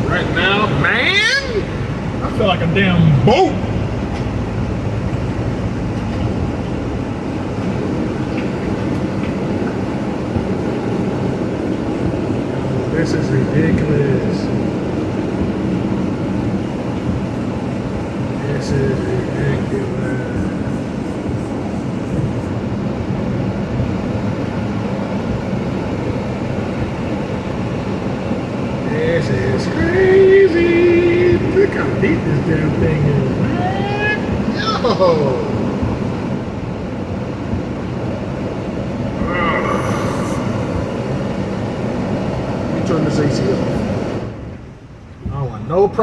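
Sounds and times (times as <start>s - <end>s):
vehicle engine drone: 0.0s - 45.0s.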